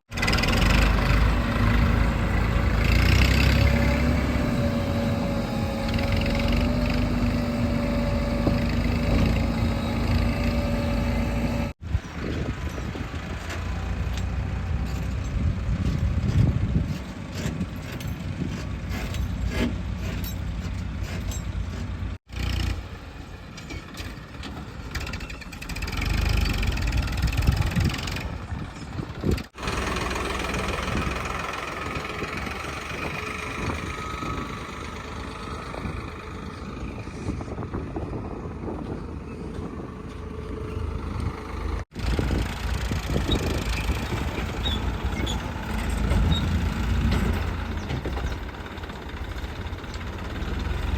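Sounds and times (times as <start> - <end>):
heavy diesel machinery engines: 0.1 - 50.9.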